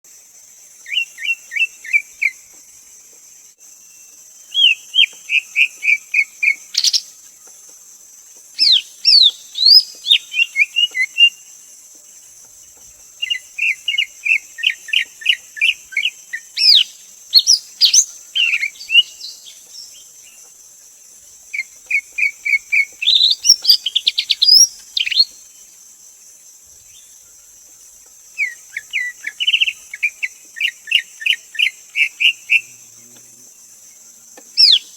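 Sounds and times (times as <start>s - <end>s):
bird singing whistled notes: 0.8s - 2.4s, 3.9s - 7.1s, 8.6s - 11.4s, 13.2s - 20.1s, 21.6s - 25.6s, 28.4s - 32.8s, 34.6s - 34.9s.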